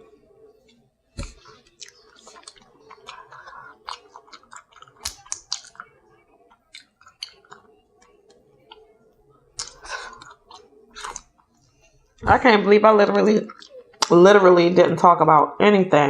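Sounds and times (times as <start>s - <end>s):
person chewing and smacking: 0.6s - 11.8s, 13.5s - 14.1s.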